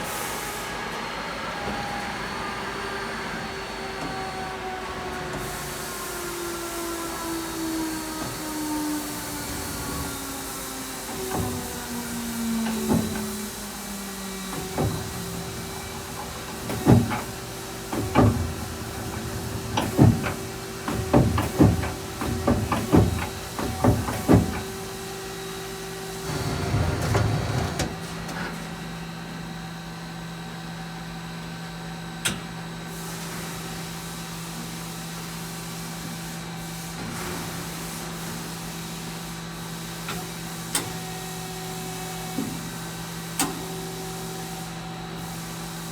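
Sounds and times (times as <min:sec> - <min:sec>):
lathe machine hum: 0:02.2 - 0:28.2.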